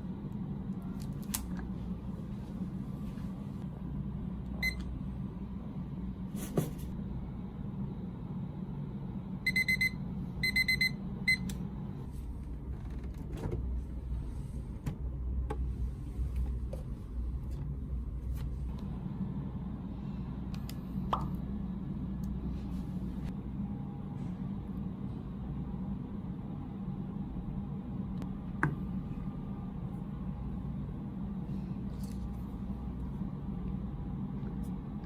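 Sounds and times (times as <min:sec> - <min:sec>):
steady low hum: 0:00.0 - 0:35.0
appliance beeping: 0:04.5 - 0:05.0, 0:09.4 - 0:11.7.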